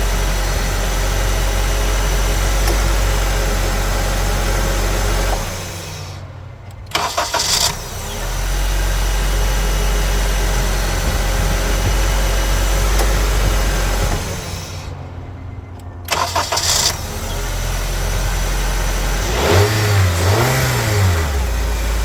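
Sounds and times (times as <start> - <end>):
car engine idling: 0.0 - 22.0
starter motor cranking: 0.0 - 22.0.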